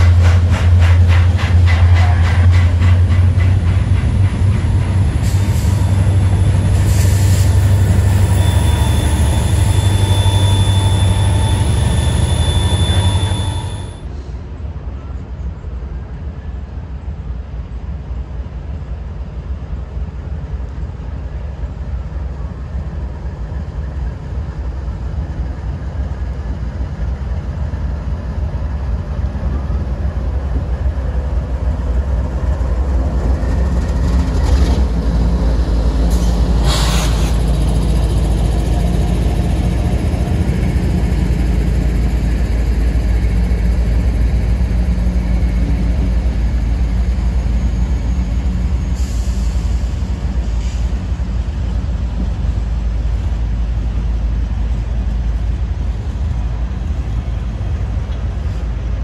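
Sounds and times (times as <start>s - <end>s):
engine drone: 0.0s - 14.0s
diesel locomotive rumble: 0.0s - 59.0s
short noise bursts: 6.8s - 14.0s.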